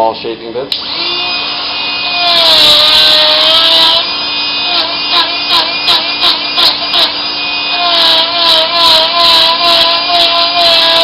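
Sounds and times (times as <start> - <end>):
die grinder whining cutting wood: 0.8 - 11.0.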